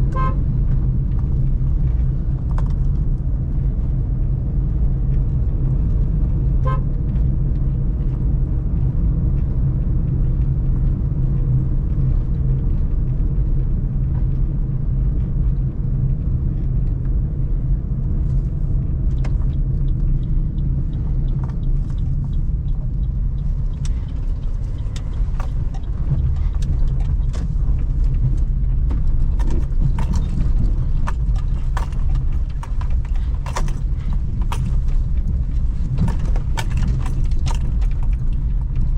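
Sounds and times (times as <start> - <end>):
car engine running: 0.0 - 38.9
road rumble: 0.0 - 38.9
car horn: 0.1 - 0.4, 6.6 - 7.0
sharp clicks and knocks: 19.1 - 38.9.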